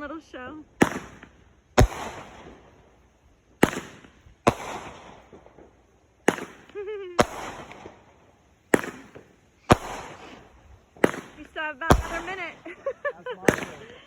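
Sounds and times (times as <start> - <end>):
fireworks bangs with crackle: 0.7 - 14.0.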